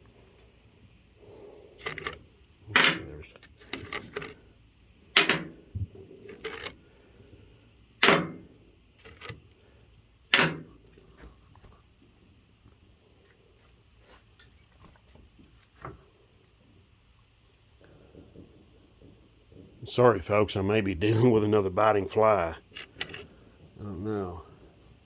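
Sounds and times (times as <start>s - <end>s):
metal bolts clinking: 1.8s - 4.4s, 5.2s - 5.6s, 6.3s - 6.8s, 8.0s - 9.5s, 10.3s - 10.8s, 22.7s - 23.3s.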